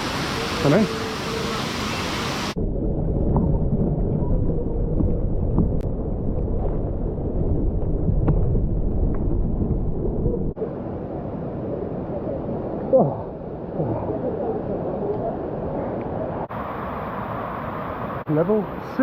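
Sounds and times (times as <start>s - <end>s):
rushing water hiss: 0.0s - 2.6s, 16.5s - 19.0s
muffled underwater rumble: 2.6s - 10.7s.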